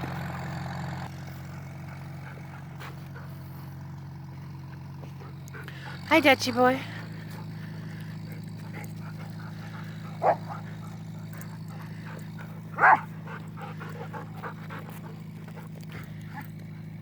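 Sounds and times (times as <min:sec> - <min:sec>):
steady low hum: 0:01.2 - 0:17.0
dog barking: 0:10.2 - 0:10.7, 0:12.8 - 0:13.1.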